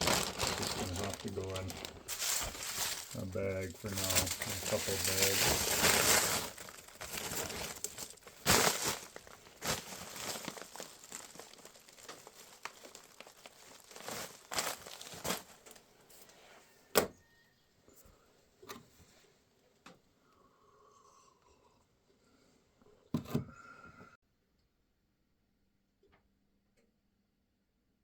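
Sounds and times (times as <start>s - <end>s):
bags crinkling and rustling: 0.0s - 16.3s.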